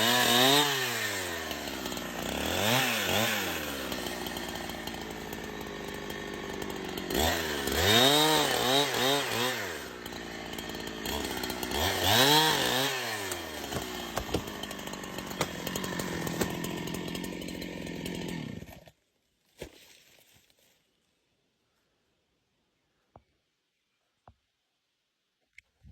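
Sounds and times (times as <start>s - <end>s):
chainsaw engine revving: 0.0s - 18.9s.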